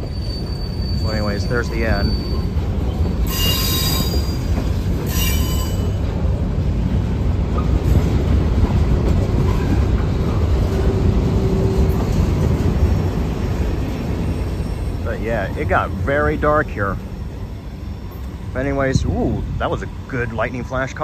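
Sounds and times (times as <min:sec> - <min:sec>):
high wheel squeals: 0:00.0 - 0:06.1, 0:14.0 - 0:15.2
rumble of wheels on rails: 0:00.0 - 0:21.0.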